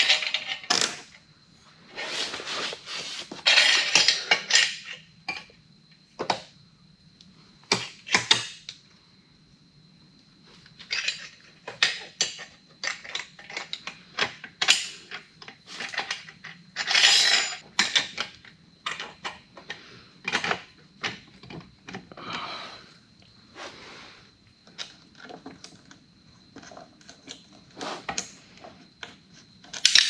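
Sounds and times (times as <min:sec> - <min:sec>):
metal tools clinking and knocking: 0:00.0 - 0:01.0, 0:03.3 - 0:05.5, 0:10.8 - 0:13.9, 0:15.8 - 0:18.2.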